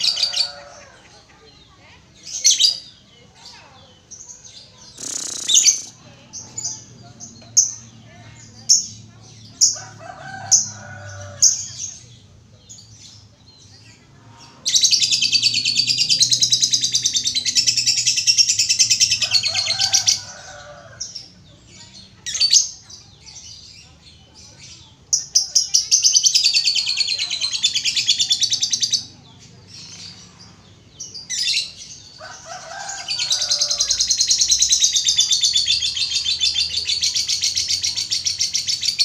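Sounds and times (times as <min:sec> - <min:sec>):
lovebird chirping and trilling: 0:04.8 - 0:06.9.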